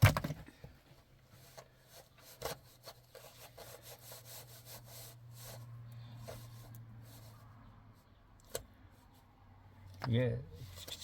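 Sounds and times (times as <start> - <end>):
faint scraping strokes: 1.3 - 8.2.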